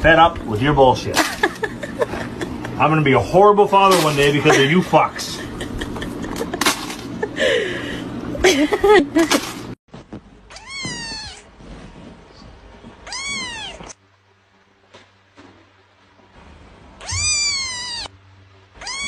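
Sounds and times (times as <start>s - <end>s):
noisy scuffling: 0.0s - 7.4s, 8.5s - 14.0s
cat meowing: 10.5s - 11.5s, 13.0s - 14.0s, 17.0s - 18.1s, 18.8s - 19.0s.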